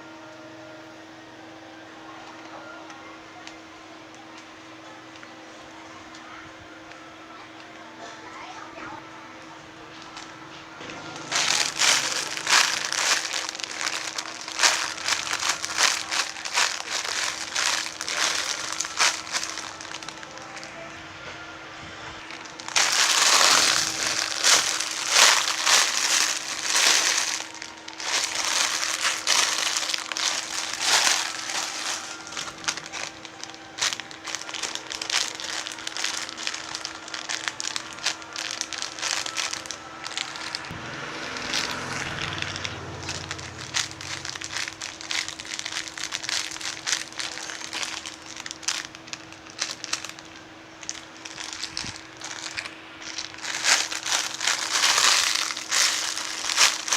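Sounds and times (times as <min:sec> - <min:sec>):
plastic crinkling: 0:09.9 - 0:20.9, 0:22.2 - 0:40.7, 0:41.4 - 0:56.9.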